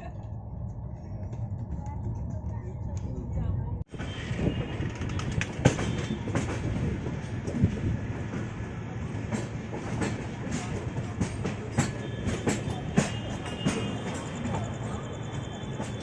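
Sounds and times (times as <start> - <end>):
train running on rails: 0.0 - 16.0
wheels clacking over rail joints: 4.0 - 16.0.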